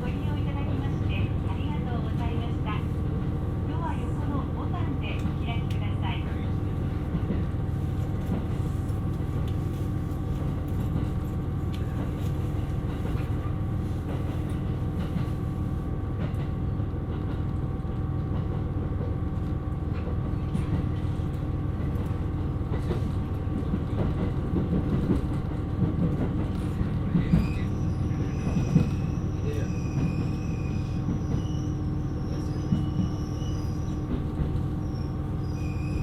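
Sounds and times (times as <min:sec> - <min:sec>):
wheels rumbling on rail: 0:00.0 - 0:36.0
faint high squeal: 0:27.2 - 0:34.1, 0:34.8 - 0:36.0.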